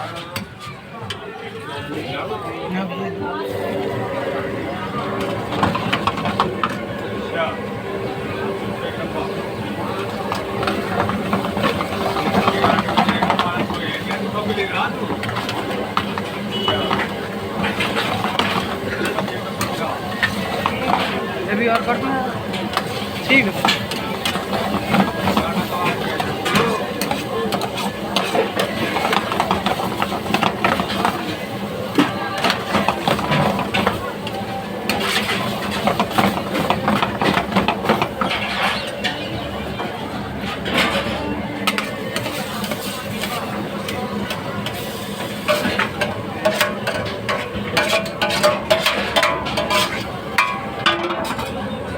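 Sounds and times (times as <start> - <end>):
indistinct voices: 0.0 - 51.9
steady background hum: 1.9 - 51.9
metal utensils scraping a pan: 9.9 - 34.0, 34.8 - 51.6.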